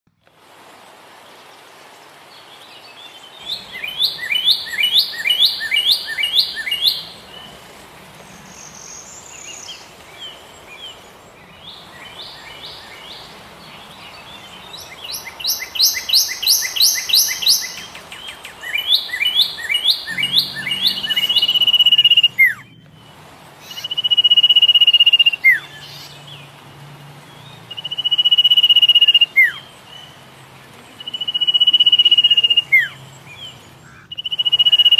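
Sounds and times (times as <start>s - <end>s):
background hiss: 0.1s - 34.9s
songbirds chirping: 0.2s - 34.9s
high whistled notes: 20.0s - 22.6s.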